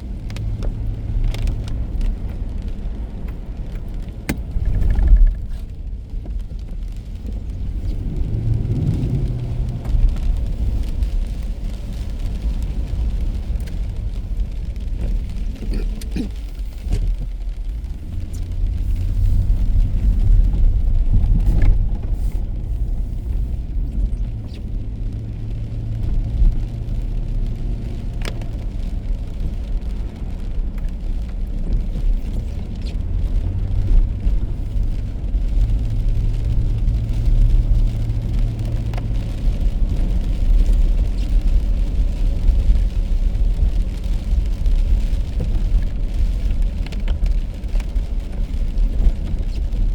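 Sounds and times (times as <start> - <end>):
car driving on wet road: 0.0 - 49.9.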